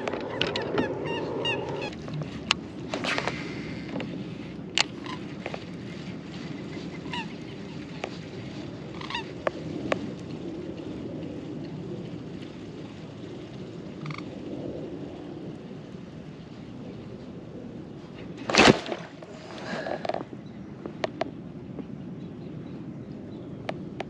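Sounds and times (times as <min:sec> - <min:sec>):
waterbird honking calls: 0:00.0 - 0:02.0, 0:06.9 - 0:08.0, 0:08.9 - 0:09.4
wind and water rumble: 0:00.0 - 0:24.0.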